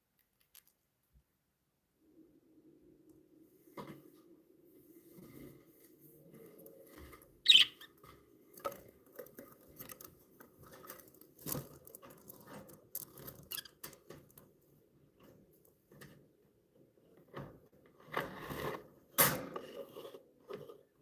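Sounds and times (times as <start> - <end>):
budgerigars clicking and scratching: 7.5 - 7.9.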